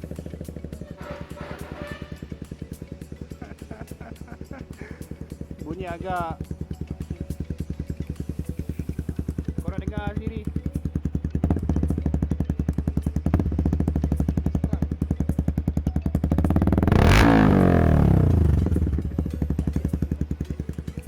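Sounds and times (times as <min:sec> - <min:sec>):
motorcycle engine revving: 0:00.0 - 0:21.0
motorcycle idling with bassy exhaust: 0:00.0 - 0:21.0
motorcycle throttle blips: 0:00.0 - 0:21.0.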